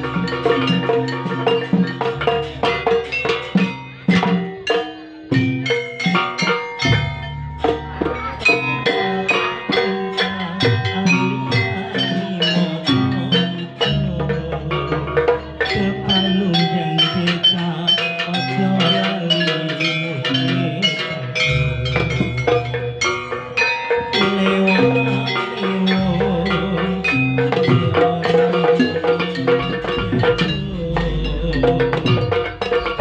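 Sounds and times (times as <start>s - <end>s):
drums: 0.0s - 33.0s
mallet instrument notes: 0.0s - 33.0s
wood block hits: 0.0s - 33.0s
deep bass notes: 24.2s - 33.0s.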